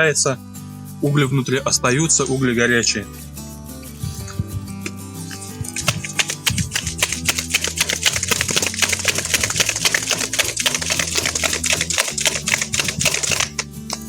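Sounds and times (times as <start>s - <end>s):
faint background music: 0.0s - 14.0s
campfire crackling and popping: 5.6s - 14.0s.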